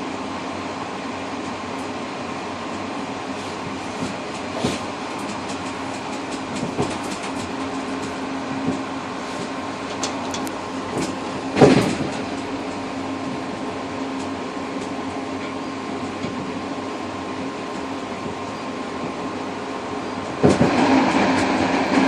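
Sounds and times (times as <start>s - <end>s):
constant hum: 0.0s - 22.0s
train rolling rumble: 0.0s - 22.0s.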